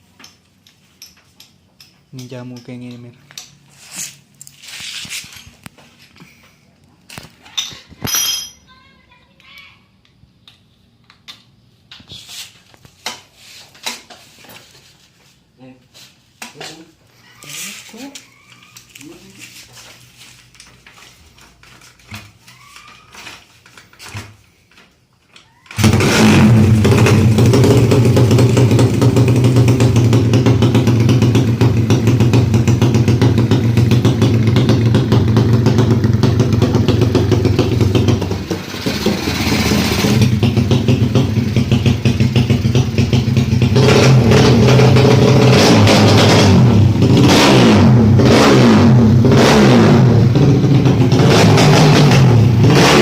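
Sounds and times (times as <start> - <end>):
motorcycle engine revving: 25.8 - 53.0.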